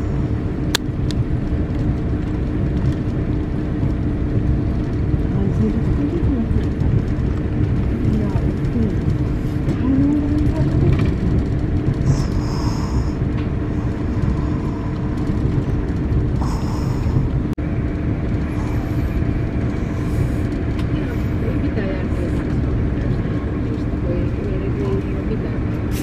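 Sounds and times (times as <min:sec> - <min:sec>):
constant hum: 0:00.0 - 0:26.0
moving train rumble: 0:00.0 - 0:26.0.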